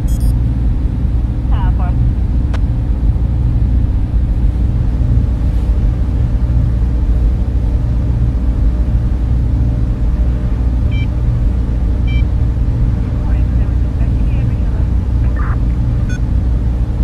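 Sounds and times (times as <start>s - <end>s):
short high beep: 0.0s - 0.3s
cooling fans humming: 0.0s - 17.0s.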